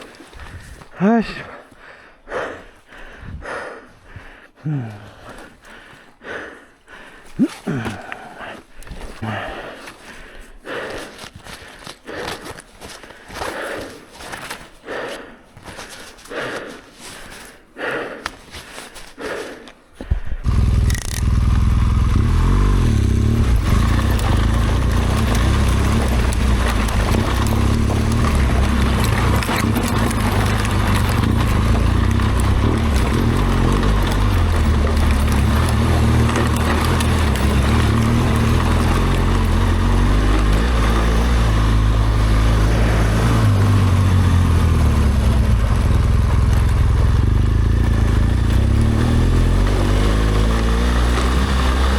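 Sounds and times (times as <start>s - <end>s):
motorcycle engine running: 20.4s - 51.9s.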